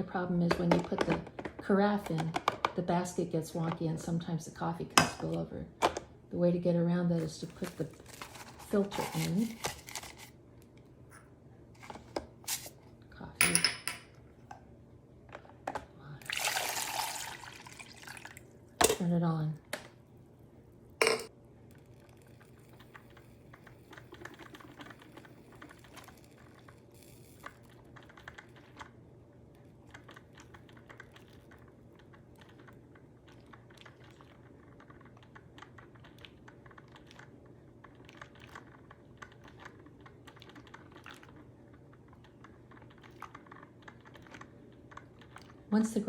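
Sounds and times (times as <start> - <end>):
low steady hum: 0.0 - 46.0
coffee maker ticking and crackling: 21.6 - 46.0.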